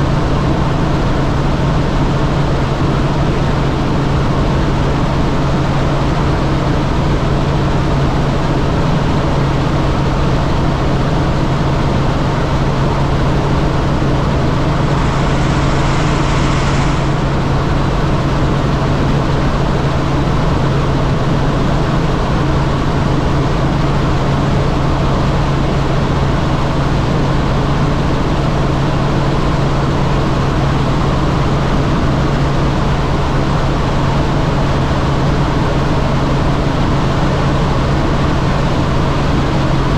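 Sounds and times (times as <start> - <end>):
helicopter engine and rotors droning: 0.0 - 39.9
low hum: 12.8 - 19.2
short hiss: 14.5 - 17.7.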